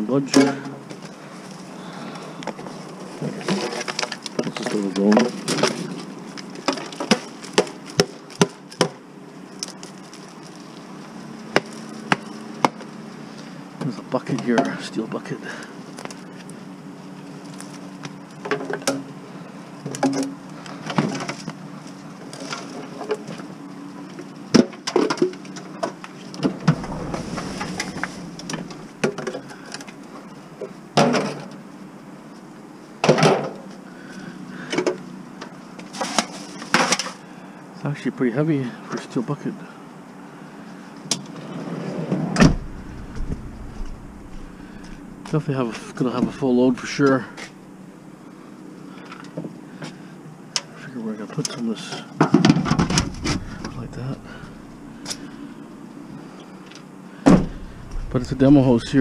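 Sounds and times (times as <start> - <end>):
faint steady hum: 25.3 - 35.9, 42.3 - 59.0
bucket scraping and rustling: 26.2 - 29.9, 42.1 - 47.6, 52.8 - 55.5.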